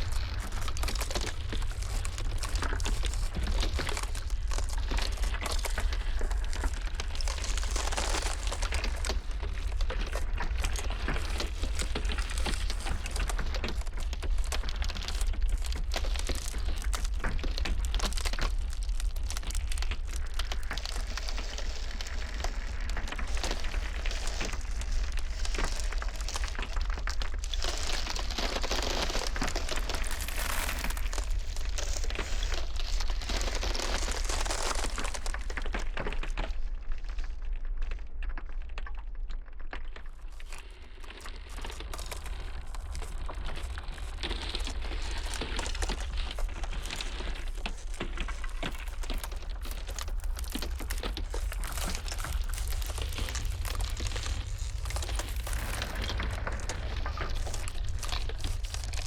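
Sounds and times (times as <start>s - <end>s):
blizzard wind rumble: 0.0s - 37.0s, 40.3s - 59.0s
ice cracking: 0.0s - 59.0s.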